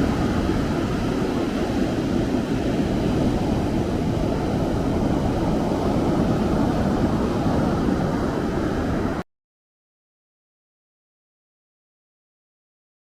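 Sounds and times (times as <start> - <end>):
ocean surf roar: 0.0 - 9.2
wind on microphone: 0.0 - 9.2.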